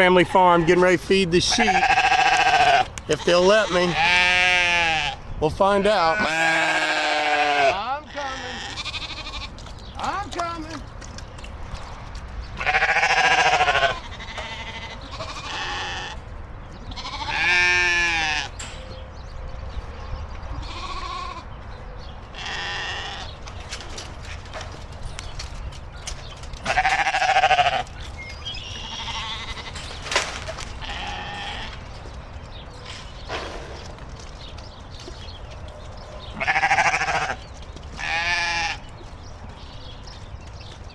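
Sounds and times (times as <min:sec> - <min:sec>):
sheep bleating: 0:00.0 - 0:05.2, 0:05.8 - 0:10.1, 0:12.6 - 0:16.3, 0:16.9 - 0:18.6, 0:20.6 - 0:21.5, 0:22.3 - 0:23.4, 0:26.6 - 0:28.0, 0:28.6 - 0:29.9, 0:30.8 - 0:31.9, 0:36.3 - 0:38.9.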